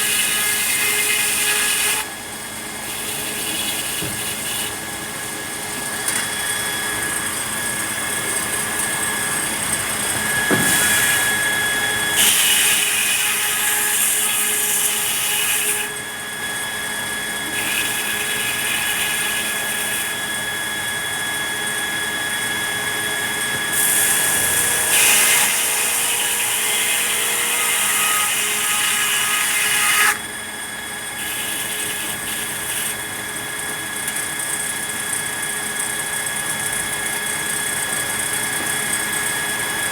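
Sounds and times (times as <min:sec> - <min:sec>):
sawmill saw whining: 0:00.0 - 0:39.9
saw hissing through wood: 0:08.6 - 0:13.0.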